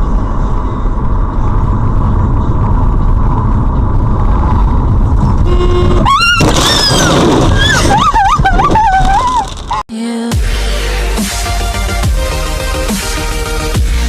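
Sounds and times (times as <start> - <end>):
road vehicle rumble: 0.0 - 14.0
electronic music with rising sweep: 10.2 - 14.0.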